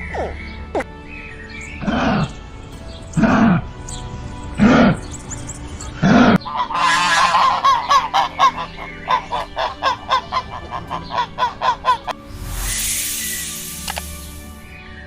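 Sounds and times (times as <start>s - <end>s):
goose-like honking calls: 6.4s - 12.2s.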